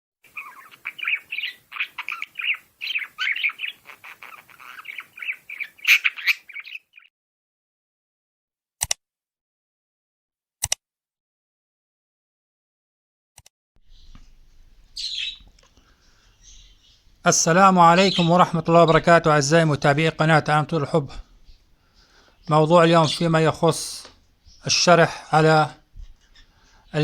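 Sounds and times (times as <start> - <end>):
parrots chattering and squawking: 0.2 - 7.1, 13.9 - 19.2
short sharp clicks: 8.8 - 9.0.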